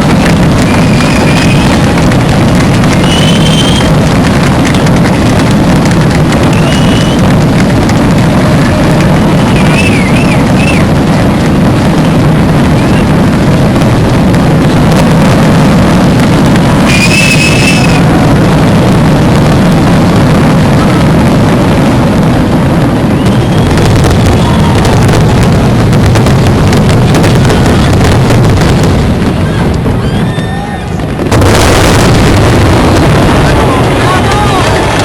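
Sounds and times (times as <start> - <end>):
fireworks bursts and crackles: 0.0 - 35.0
high whistle: 2.9 - 3.9, 6.5 - 7.2, 9.4 - 10.8, 16.8 - 18.0.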